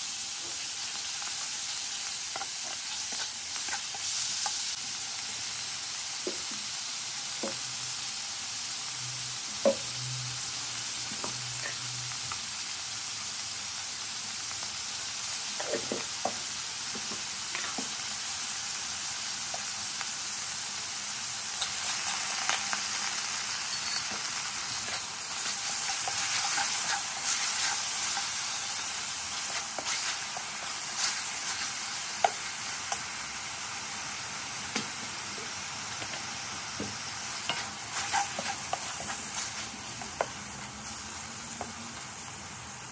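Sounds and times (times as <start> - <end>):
beef sizzling in a wok: 0.0 - 42.9
spatula scraping against pan: 24.8 - 28.6, 37.4 - 39.7.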